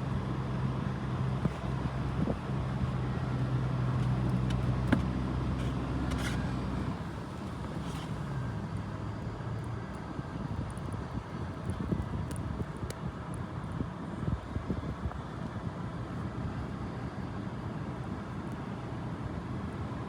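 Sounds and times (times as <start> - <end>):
vehicle engine humming: 0.0 - 14.2
wind noise: 1.3 - 3.2, 10.1 - 15.3.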